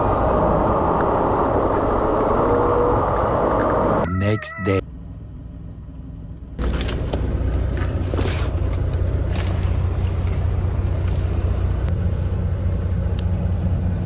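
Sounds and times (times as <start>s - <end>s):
diesel truck engine running: 4.8s - 14.0s.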